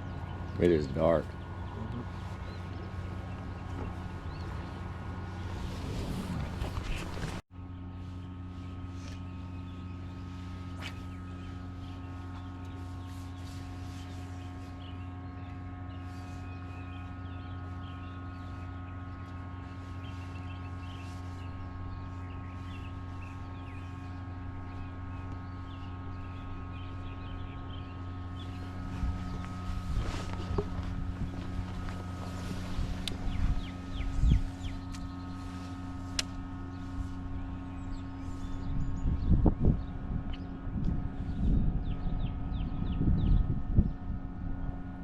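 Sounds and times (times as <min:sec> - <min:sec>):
boat motor humming: 0:00.0 - 0:45.0.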